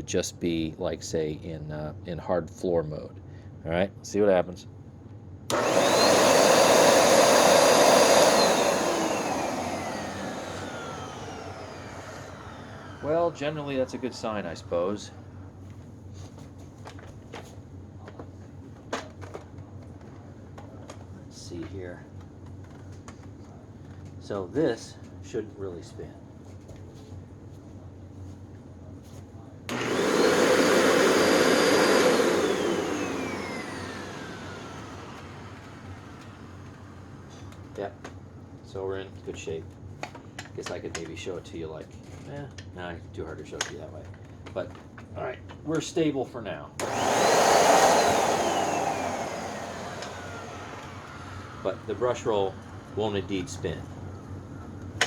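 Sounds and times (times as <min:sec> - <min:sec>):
vacuum motor whining: 0:05.5 - 0:15.1, 0:29.7 - 0:38.1, 0:46.8 - 0:55.0.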